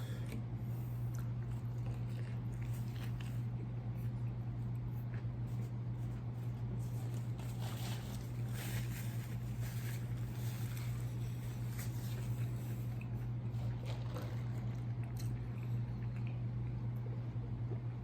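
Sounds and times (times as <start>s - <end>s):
steady low hum: 0.0s - 18.0s
person chewing food: 1.0s - 6.3s, 12.0s - 17.8s.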